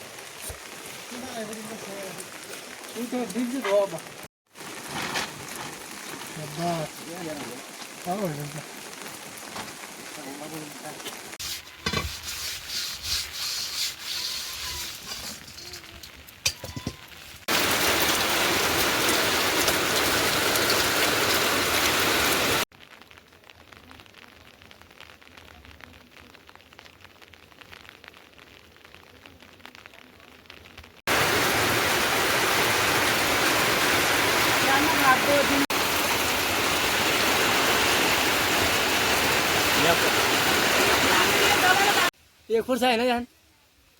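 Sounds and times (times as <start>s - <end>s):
heavy rain hissing: 0.0s - 16.3s, 17.3s - 22.7s, 31.1s - 43.2s
sharp knocks and scrapes: 11.4s - 15.8s.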